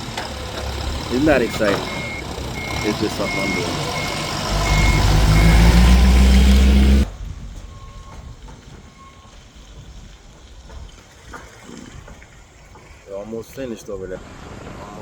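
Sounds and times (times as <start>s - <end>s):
forklift engine revving: 0.0s - 7.1s
reversing alarm beeping: 1.2s - 9.4s.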